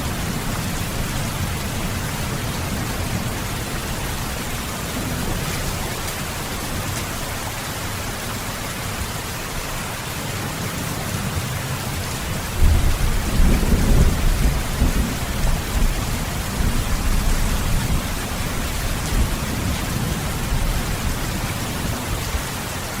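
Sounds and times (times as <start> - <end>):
thunder rumbling: 0.0 - 8.2, 12.3 - 22.5
heavy rain: 0.0 - 23.0.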